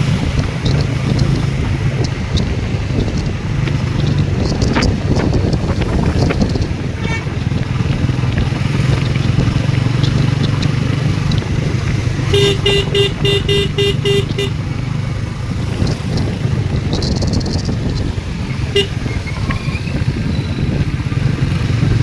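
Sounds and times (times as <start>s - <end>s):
motorcycle engine running: 0.0s - 22.0s
traffic noise: 0.0s - 22.0s
vehicle horn short beeps: 7.0s - 7.4s, 12.3s - 14.6s, 18.7s - 19.1s.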